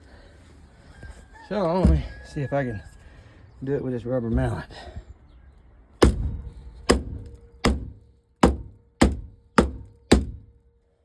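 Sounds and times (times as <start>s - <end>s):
rubber mallet hitting metal: 6.9s - 10.5s.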